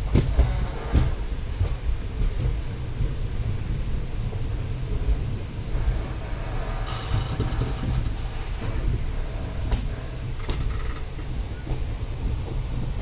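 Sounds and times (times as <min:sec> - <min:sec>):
train rumbling on rails: 0:00.0 - 0:13.0
rattling noise: 0:05.7 - 0:11.4.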